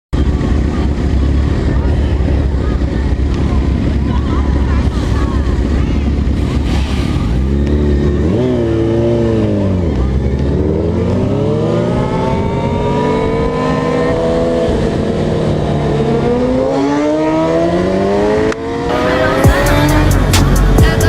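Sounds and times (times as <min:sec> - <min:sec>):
vehicle engine revving: 0:00.2 - 0:21.0
hip-hop beat: 0:18.9 - 0:21.0.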